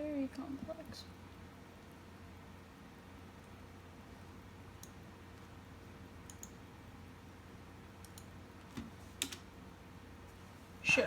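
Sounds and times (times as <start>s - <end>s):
low steady hum: 0.0s - 11.0s
faint mouse clicks: 4.8s - 5.0s, 6.2s - 6.6s, 8.0s - 9.4s.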